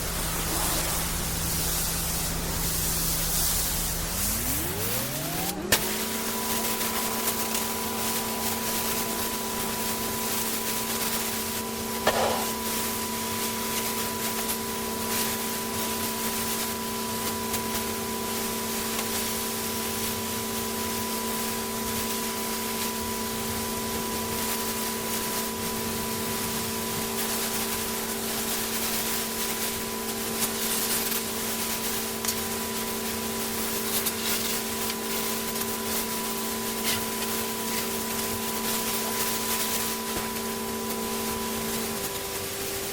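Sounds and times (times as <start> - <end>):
water spraying hiss: 0.0 - 7.2
pressure washer engine running: 0.0 - 42.9.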